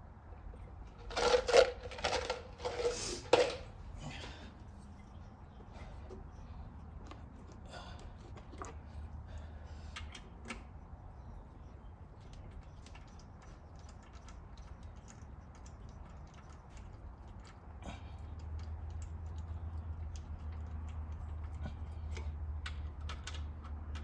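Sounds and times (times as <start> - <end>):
hand tools clicking on bolts: 12.2 - 24.0.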